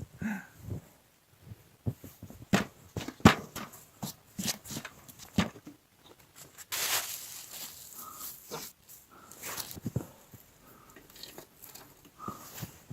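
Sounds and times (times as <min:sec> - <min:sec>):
rough rustling: 0:06.2 - 0:12.9.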